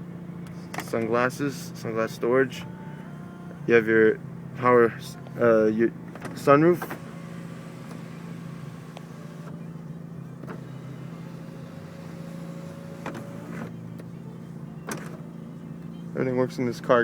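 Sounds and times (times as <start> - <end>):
low cabin hum: 0.0 - 17.0
sunroof motor whining: 6.1 - 14.1.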